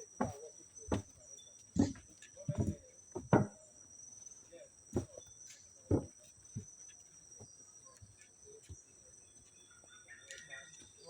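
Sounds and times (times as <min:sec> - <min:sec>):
dull thumps: 0:00.2 - 0:01.2, 0:01.8 - 0:03.6, 0:05.0 - 0:05.2, 0:05.9 - 0:06.7
shrill insect chorus: 0:06.4 - 0:11.0.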